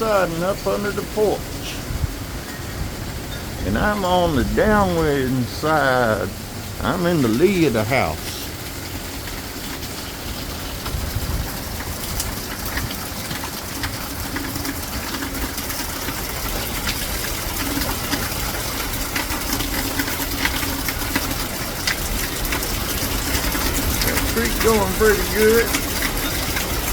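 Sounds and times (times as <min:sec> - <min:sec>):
raindrops ticking: 0:00.0 - 0:26.9
storm wind gusting: 0:01.0 - 0:07.0.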